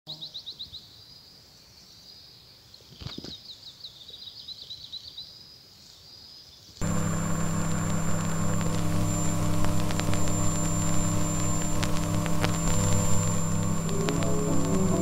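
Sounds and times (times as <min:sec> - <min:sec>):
small bird singing: 0:00.1 - 0:06.8
faint outdoor hiss: 0:00.1 - 0:15.0.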